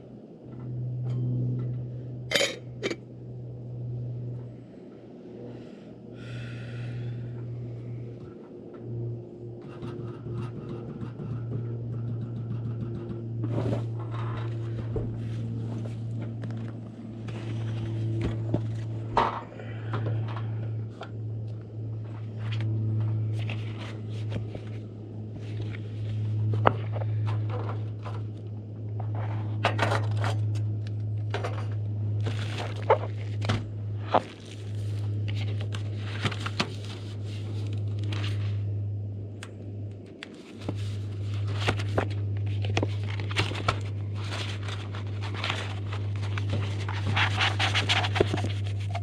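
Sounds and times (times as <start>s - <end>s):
steady low hum: 0.0s - 49.0s
objects being handled: 40.0s - 49.0s.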